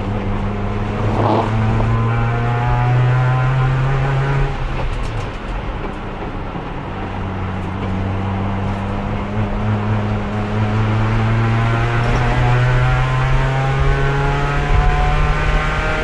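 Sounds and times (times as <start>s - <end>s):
race car engine: 0.0s - 16.0s.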